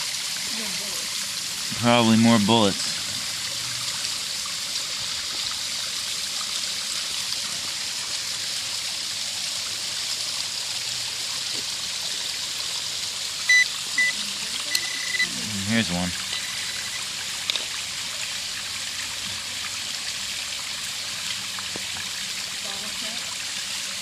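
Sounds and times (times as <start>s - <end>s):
stream water trickling: 0.0s - 24.0s
metal detector beeps: 13.5s - 15.4s, 16.3s - 17.0s.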